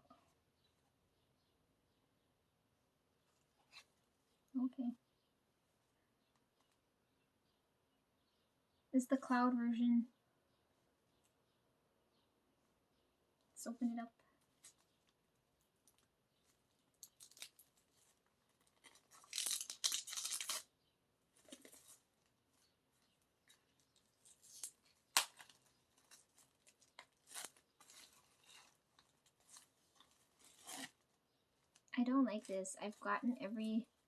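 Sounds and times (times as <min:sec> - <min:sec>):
packaging tearing: 0:17.0 - 0:17.9, 0:18.5 - 0:20.7, 0:24.0 - 0:31.8.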